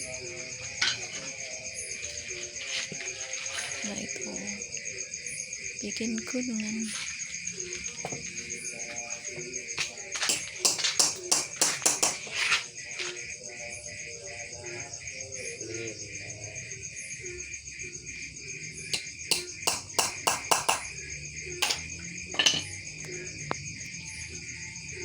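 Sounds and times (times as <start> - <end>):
crickets chirring: 0.0 - 25.0
taps on wooden bird cage: 10.2 - 12.3, 19.0 - 20.9.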